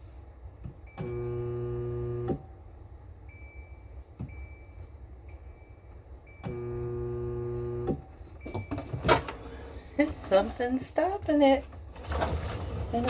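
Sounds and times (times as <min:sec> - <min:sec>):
dishwasher motor humming: 0:00.9 - 0:02.5, 0:06.3 - 0:10.4, 0:11.3 - 0:13.0.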